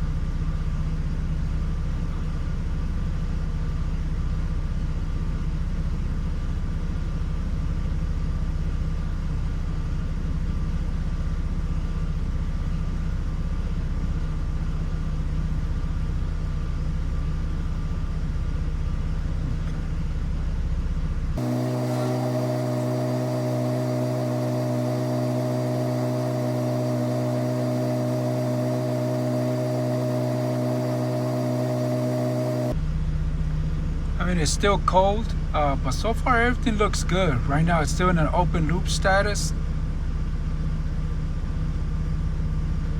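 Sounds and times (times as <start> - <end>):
engine idling with steady rumble: 0.0 - 42.9
smooth hum of held tones: 21.4 - 32.8.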